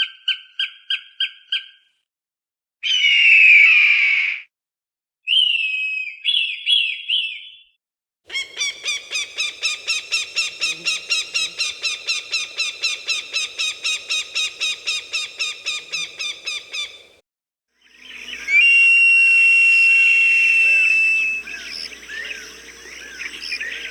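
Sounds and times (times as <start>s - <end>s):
falcon calling: 8.3s - 17.2s, 17.9s - 23.9s.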